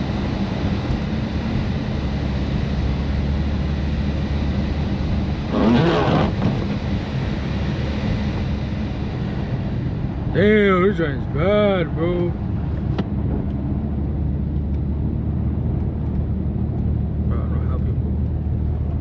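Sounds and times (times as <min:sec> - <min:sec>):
tyre and road noise: 0:00.0 - 0:10.4
car exhaust droning: 0:02.2 - 0:11.2.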